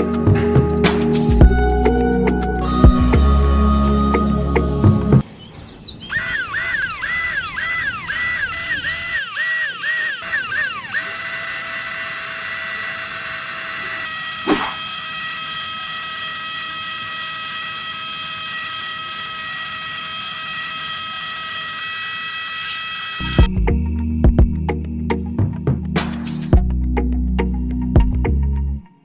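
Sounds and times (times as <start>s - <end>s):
small motor whining: 0.0s - 5.2s, 6.0s - 23.6s.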